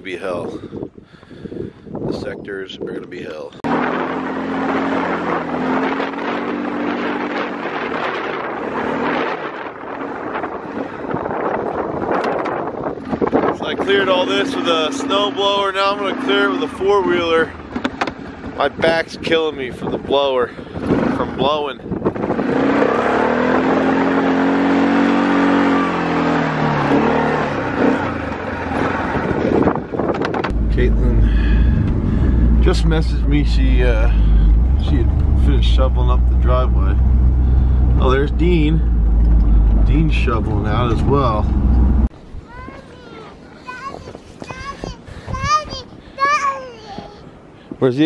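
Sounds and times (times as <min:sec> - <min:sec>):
atv engine running: 0:03.7 - 0:19.9, 0:20.6 - 0:42.1.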